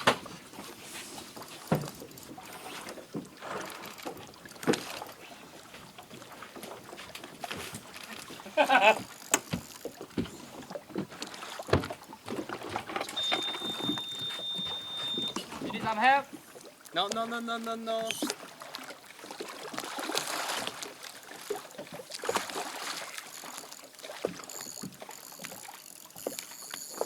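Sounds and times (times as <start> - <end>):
knocks and bumps on a kayak: 0.0 - 0.6, 9.0 - 16.1.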